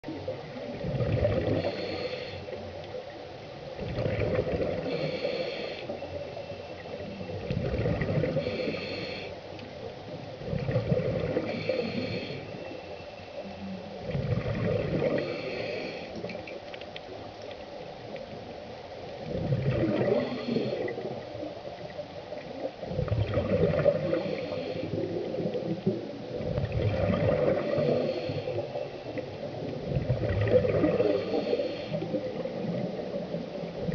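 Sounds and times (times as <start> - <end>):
exhaled bubbles gurgling: 0.0 - 3.1, 3.7 - 9.3, 10.1 - 12.8, 13.4 - 16.5, 18.1 - 33.9
scuba regulator inhalation hiss: 1.6 - 2.6, 4.8 - 6.0, 8.3 - 9.4, 11.4 - 12.6, 15.0 - 16.2, 20.1 - 21.0, 24.0 - 25.1, 27.6 - 28.7, 31.0 - 32.2.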